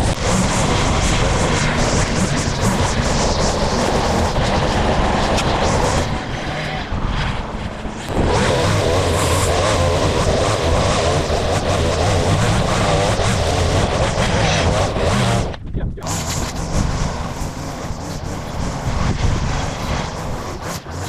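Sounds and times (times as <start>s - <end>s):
gas-powered brush cutter running: 0.0s - 21.0s.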